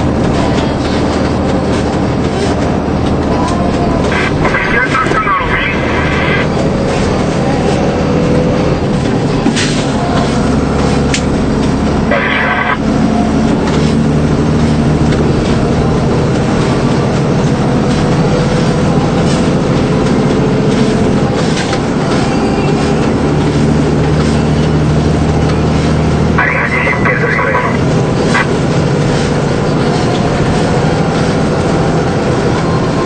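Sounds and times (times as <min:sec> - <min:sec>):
lorry engine drone: 0:00.0 - 0:33.0
road noise: 0:00.0 - 0:33.0.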